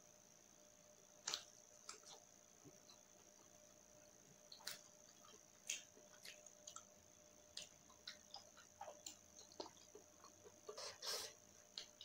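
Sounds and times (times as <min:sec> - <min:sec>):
person chewing with wet mouth clicks: 0:04.5 - 0:06.9, 0:07.5 - 0:10.6.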